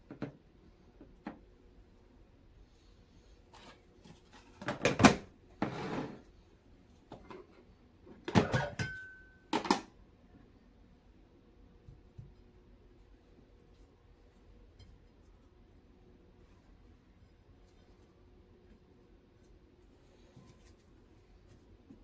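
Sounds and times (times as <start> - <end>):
dishes knocking and clinking: 8.3 - 9.8.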